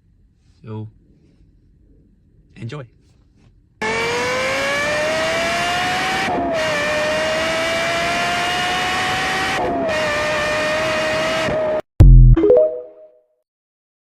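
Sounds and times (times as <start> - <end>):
sports car accelerating hard: 3.8 - 11.8.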